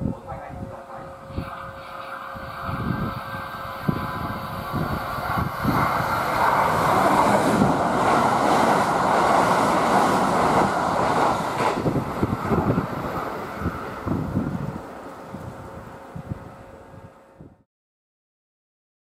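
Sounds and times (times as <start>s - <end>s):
train wheel-and-rail roar: 0.0s - 17.6s
wheels clacking over rail joints: 5.3s - 14.2s.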